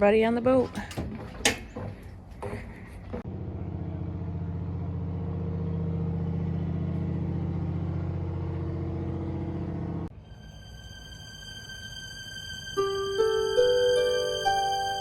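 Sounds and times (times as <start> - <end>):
boat engine running: 3.1 - 10.1.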